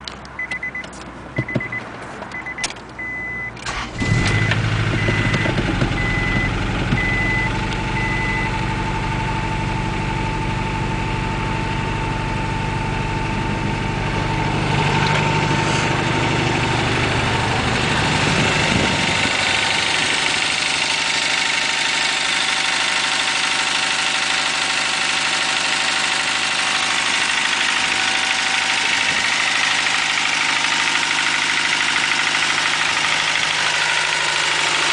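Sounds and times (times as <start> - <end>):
car engine cranking and idling: 0.0 - 34.9
repeating beep: 0.4 - 1.8, 2.4 - 8.6.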